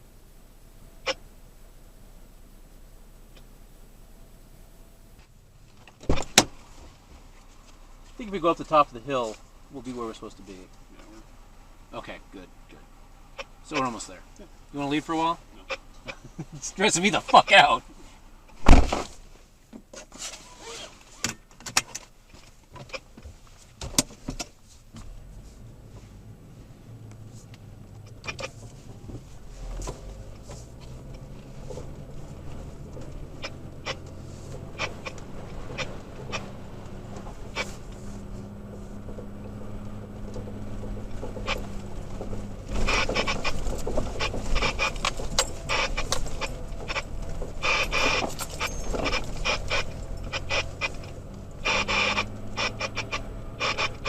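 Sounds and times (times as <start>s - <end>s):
low engine hum: 0.0s - 19.6s, 24.6s - 54.0s
clicks and knocks from suspension: 5.2s - 8.2s, 18.5s - 25.2s, 28.0s - 54.0s.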